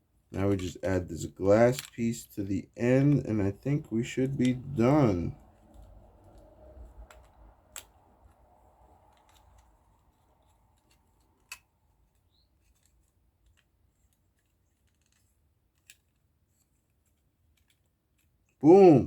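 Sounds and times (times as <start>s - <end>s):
plastic parts clicking together: 1.7s - 2.2s, 9.1s - 18.6s.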